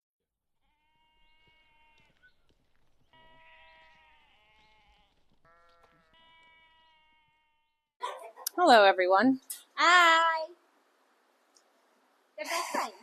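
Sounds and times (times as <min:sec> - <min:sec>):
faint livestock bleating: 0:00.6 - 0:02.3, 0:03.0 - 0:07.8.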